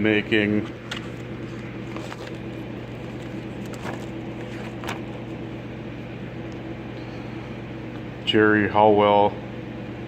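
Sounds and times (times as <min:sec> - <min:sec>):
heater humming: 0:00.0 - 0:10.0.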